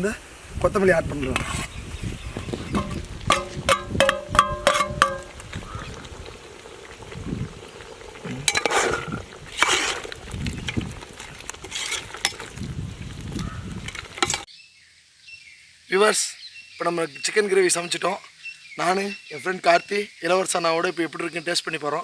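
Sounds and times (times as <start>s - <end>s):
ladle scraping pot: 1.2s - 6.0s, 8.3s - 12.6s
ladle tapping metal pot: 2.7s - 5.4s, 8.5s - 8.9s.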